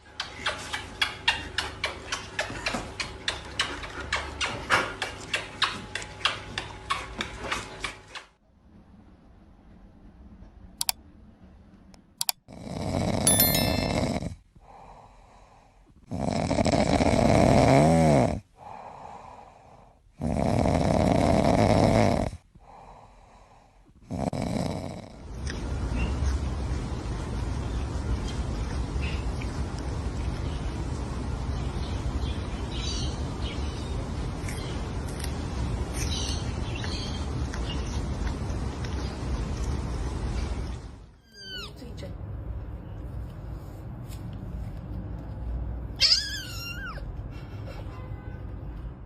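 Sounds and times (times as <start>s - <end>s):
loud snoring: 12.5s - 14.4s, 16.0s - 19.2s, 20.2s - 22.5s, 24.0s - 25.3s.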